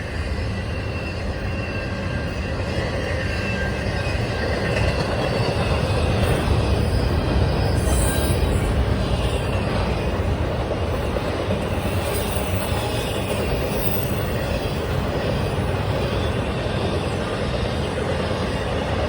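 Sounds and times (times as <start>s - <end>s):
freight train cars rumbling past: 0.0s - 19.0s
train wheel squeal: 0.0s - 19.0s.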